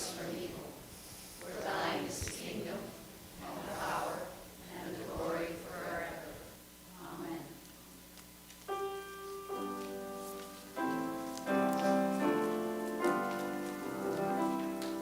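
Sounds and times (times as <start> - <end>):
sustained keyboard chords: 8.7 - 15.0.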